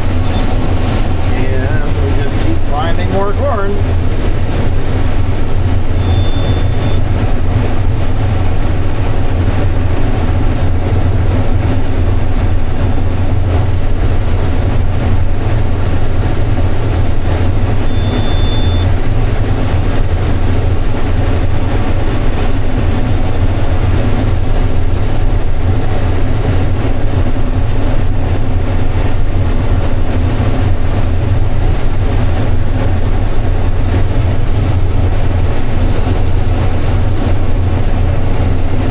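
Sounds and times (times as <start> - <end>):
combine harvester droning: 0.0 - 38.9
short high beep: 0.2 - 0.6, 6.0 - 7.0, 17.9 - 18.9.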